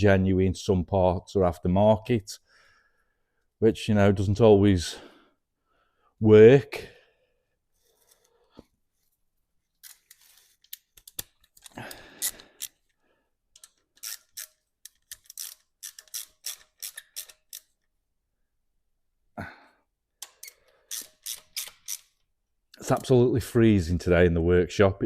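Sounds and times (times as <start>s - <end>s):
metal parts clicking and knocking: 9.8s - 12.8s, 13.5s - 17.8s, 20.2s - 22.2s.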